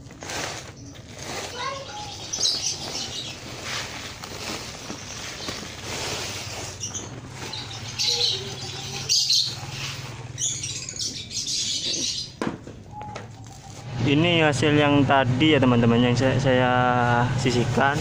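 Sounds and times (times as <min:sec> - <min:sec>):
rustling: 0:00.0 - 0:10.8
birds chirping: 0:00.5 - 0:14.8.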